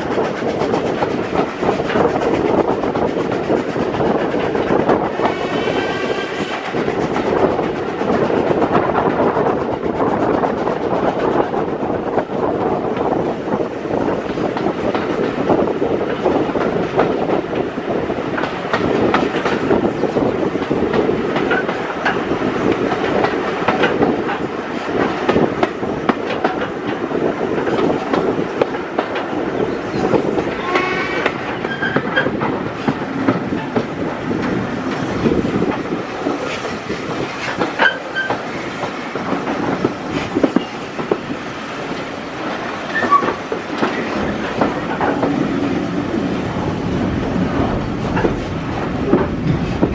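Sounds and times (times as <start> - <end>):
train coach rumble: 0.0 - 49.9
wheels clicking over rail joints: 14.2 - 49.9
wheel squeal: 30.6 - 32.3, 37.8 - 38.4, 42.9 - 43.4.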